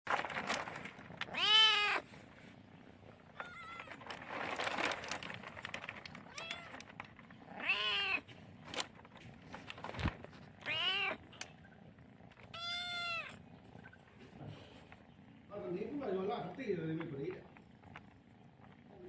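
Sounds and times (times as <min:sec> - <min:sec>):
kitten meowing: 0:01.3 - 0:02.0, 0:07.6 - 0:08.2, 0:10.6 - 0:11.2, 0:12.5 - 0:13.4.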